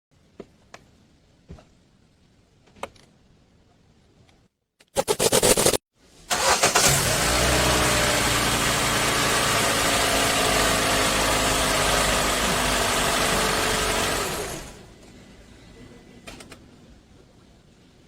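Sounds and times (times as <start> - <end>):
car engine cranking: 6.3 - 14.8
car engine idling: 6.4 - 14.8.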